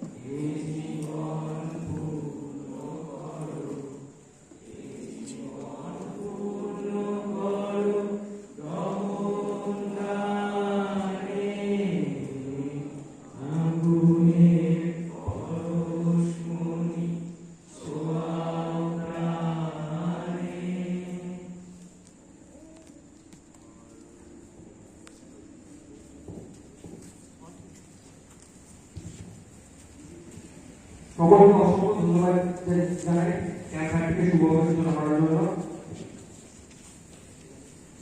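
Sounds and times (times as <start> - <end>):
group chanting in unison: 0.0 - 22.0.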